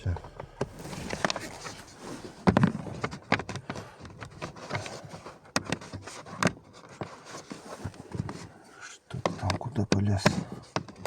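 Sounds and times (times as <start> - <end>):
clicks and knocks on plastic trim: 2.4 - 7.2, 9.1 - 11.0.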